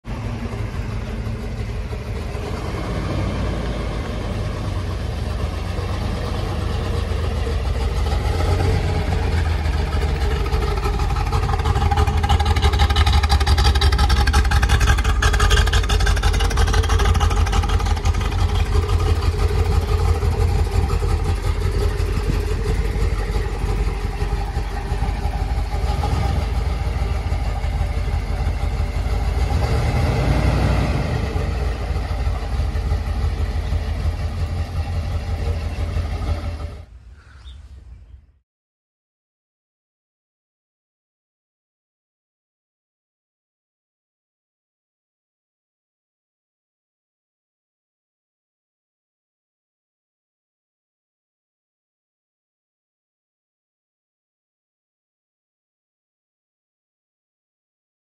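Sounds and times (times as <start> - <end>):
car engine idling: 0.0 - 37.4.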